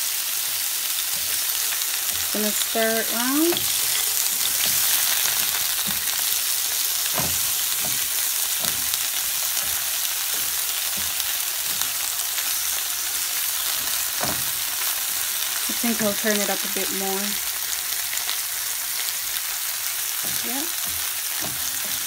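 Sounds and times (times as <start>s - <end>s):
peppers sizzling in oil: 0.0s - 22.0s
spatula scraping a pan: 0.9s - 15.0s.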